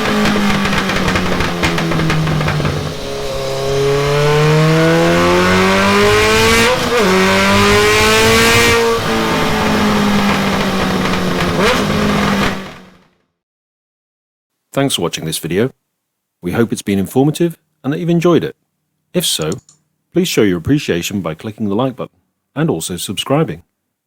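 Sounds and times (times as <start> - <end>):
motorcycle engine revving: 0.0 - 13.1.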